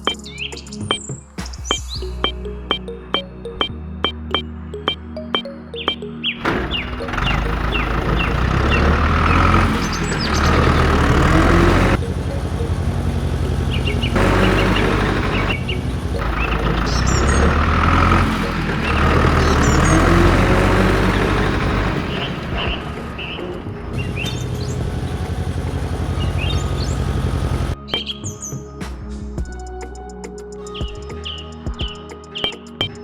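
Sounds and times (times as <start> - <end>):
birds chirping: 5.8 - 28.3
vehicle engine running: 6.4 - 27.8.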